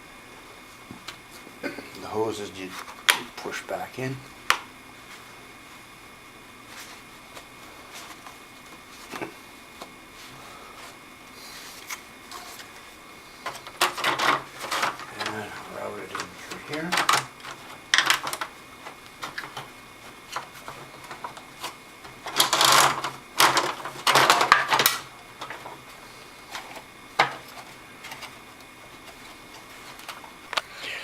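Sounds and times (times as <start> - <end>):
plastic parts clicking and knocking: 13.4 - 15.4, 16.1 - 19.7, 22.2 - 25.7, 26.6 - 27.4
rustling clatters: 13.4 - 19.7.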